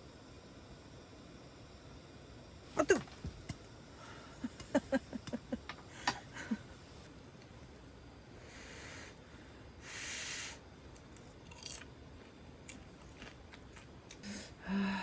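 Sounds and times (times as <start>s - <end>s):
meat hissing on grill: 9.8s - 10.6s.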